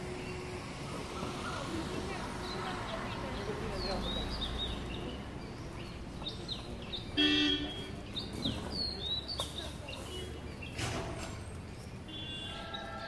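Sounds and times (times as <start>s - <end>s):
birds chirping: 0.0s - 13.0s
vehicle horn honking: 7.2s - 7.8s, 12.1s - 12.7s.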